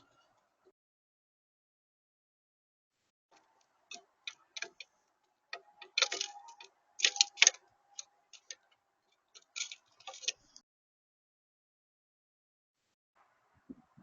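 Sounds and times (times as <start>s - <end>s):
birds pecking seed: 3.3s - 10.6s.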